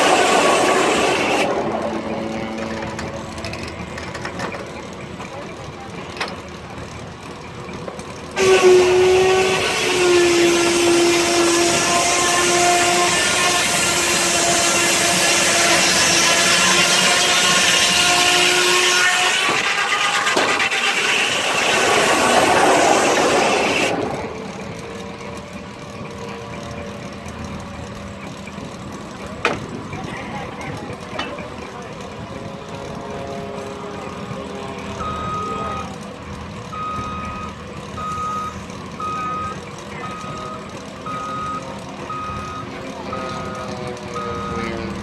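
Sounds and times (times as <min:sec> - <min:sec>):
steam hissing: 0:00.0 - 0:01.9, 0:08.4 - 0:24.6
steam whistle blast: 0:08.4 - 0:24.2.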